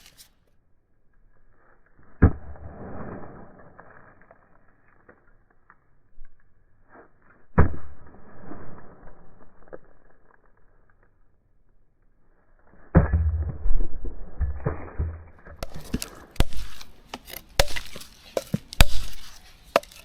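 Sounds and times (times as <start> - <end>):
rustling: 0.0 - 0.5, 15.4 - 20.0
sharp knocks: 14.4 - 19.2.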